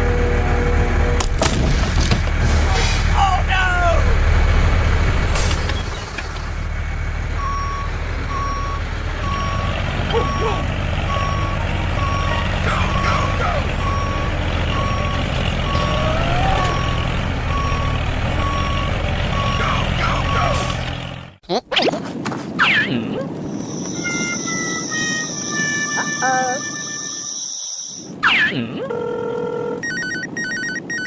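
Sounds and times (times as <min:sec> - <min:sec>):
truck engine running: 0:00.0 - 0:21.4
reversing alarm beeping: 0:07.4 - 0:20.5.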